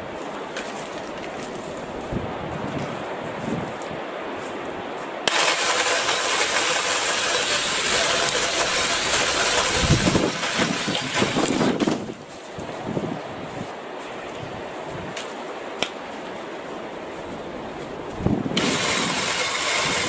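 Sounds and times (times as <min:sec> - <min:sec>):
cordless saw running: 0:05.3 - 0:11.6, 0:18.6 - 0:20.0.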